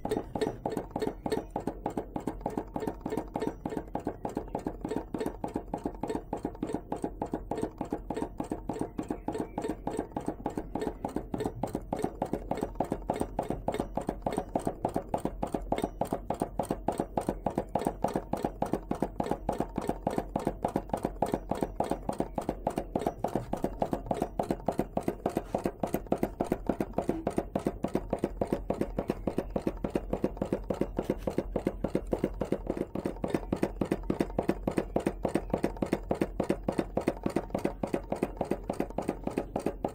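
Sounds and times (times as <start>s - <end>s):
small engine clicking rhythmically: 0.0s - 39.9s.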